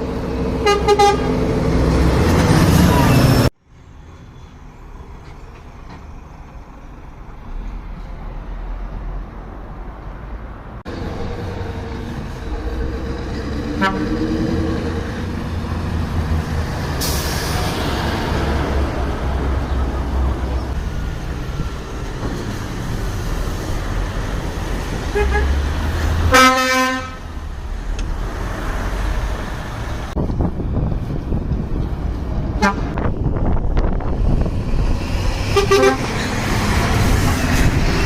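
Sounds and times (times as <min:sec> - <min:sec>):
truck engine rumble: 0:00.0 - 0:38.0
truck horn toot: 0:00.6 - 0:01.4, 0:13.6 - 0:14.8, 0:25.1 - 0:25.6, 0:26.3 - 0:27.2, 0:32.6 - 0:33.0, 0:35.5 - 0:36.2.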